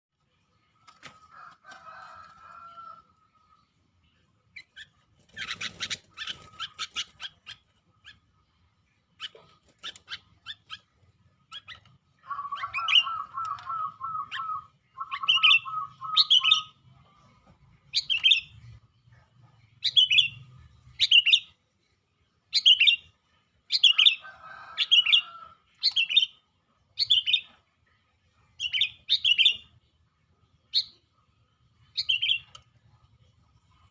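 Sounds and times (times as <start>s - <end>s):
bird trills: 11.5s - 16.8s, 32.0s - 32.6s
bird whistled song: 11.5s - 16.8s, 28.6s - 29.7s, 30.7s - 31.0s, 32.0s - 32.6s.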